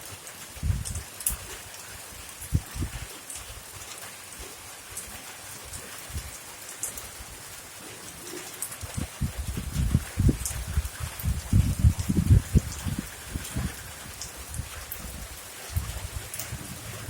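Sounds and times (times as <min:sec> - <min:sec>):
raindrops ticking: 0:00.0 - 0:17.0
steady rain hiss: 0:00.0 - 0:17.0.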